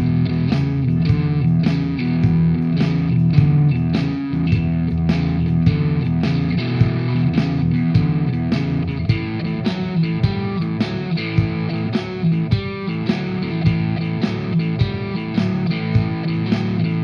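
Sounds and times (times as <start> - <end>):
bass: 0.0 - 17.0
blues guitar: 0.0 - 17.0
steady drum beat: 0.0 - 17.0.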